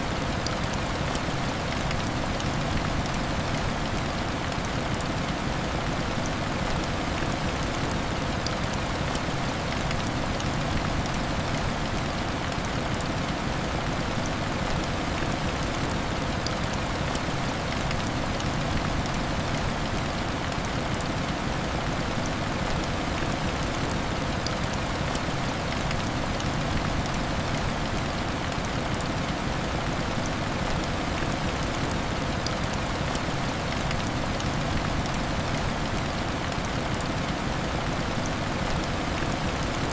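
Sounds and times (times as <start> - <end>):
heavy rain on window glass: 0.0 - 39.9.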